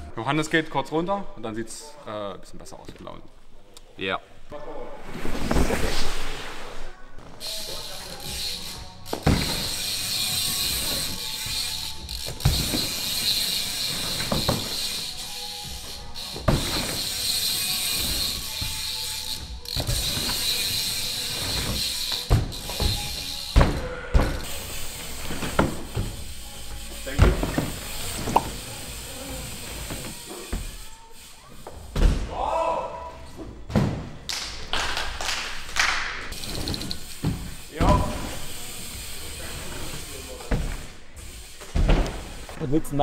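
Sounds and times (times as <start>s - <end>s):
bike hub ratchet buzzing: 7.4s - 32.0s, 36.3s - 42.5s
bike knocks and thuds: 9.1s - 9.9s, 12.3s - 13.1s, 14.0s - 14.8s, 16.4s - 17.1s, 21.4s - 24.5s, 27.1s - 28.6s, 31.7s - 32.4s, 41.7s - 42.6s.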